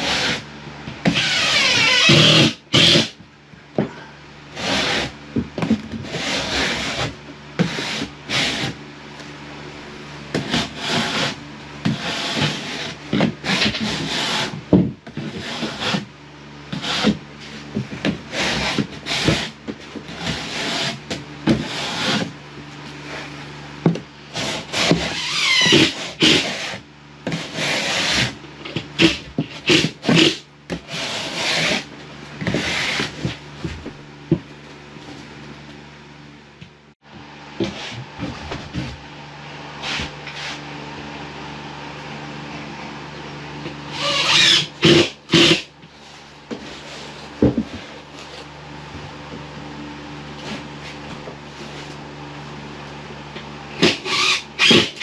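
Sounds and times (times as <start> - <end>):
scraping drywall panel: 0.0 - 3.2, 3.9 - 8.8, 10.3 - 16.1, 16.7 - 35.4, 37.6 - 39.0, 39.8 - 40.7, 43.8 - 48.5, 50.4 - 52.0, 53.7 - 55.0
steady low hum: 0.0 - 55.0.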